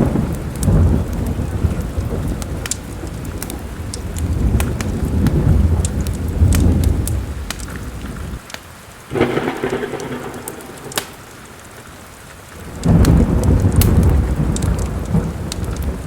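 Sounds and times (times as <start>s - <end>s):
steady rain: 0.0s - 16.0s
wood fire crackling: 0.0s - 16.0s
thunder rumbling: 9.0s - 16.0s.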